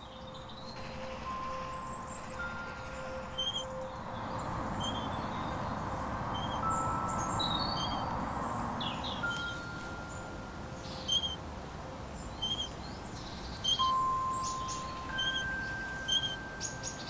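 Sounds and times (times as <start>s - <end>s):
small bird chirping: 0.0s - 5.7s, 6.3s - 11.4s, 12.2s - 17.0s
long steady held tones: 0.0s - 17.0s
outdoor noise bed: 0.0s - 17.0s.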